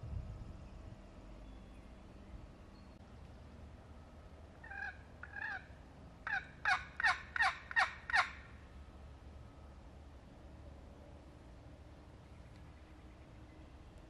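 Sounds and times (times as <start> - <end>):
turkey yelps: 4.6 - 8.5.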